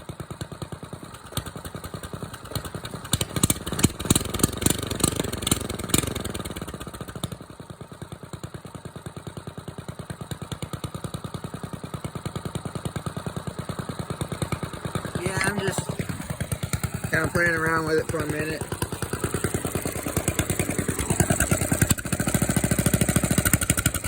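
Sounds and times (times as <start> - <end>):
diesel engine revving and idling: 2.5 - 7.0, 14.3 - 24.0.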